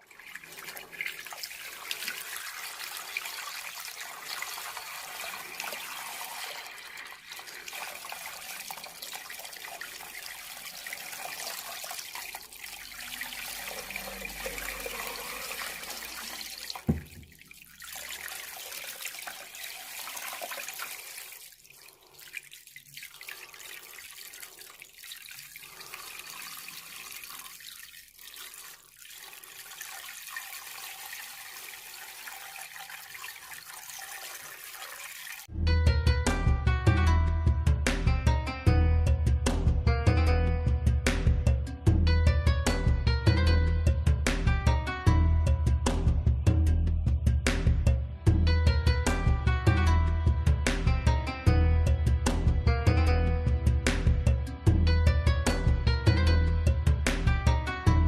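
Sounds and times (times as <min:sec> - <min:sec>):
water trickling down waterfall: 0:00.0 - 0:35.5
sharp thump: 0:16.8 - 0:17.3.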